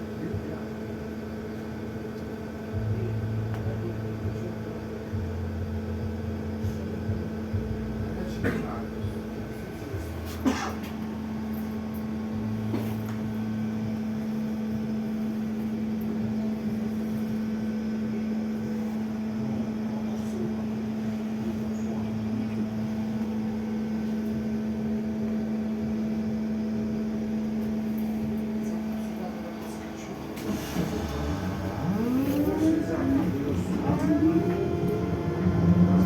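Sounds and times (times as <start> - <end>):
steady electrical hum: 0.0 - 36.0
vehicle running noise: 29.7 - 36.0.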